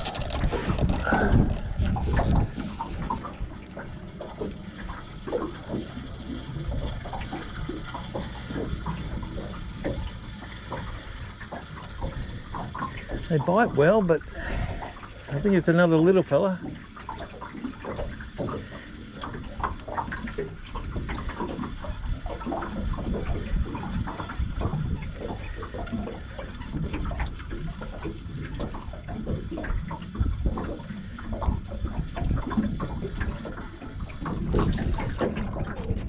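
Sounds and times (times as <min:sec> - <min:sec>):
water splashing near boat: 0:00.0 - 0:36.0.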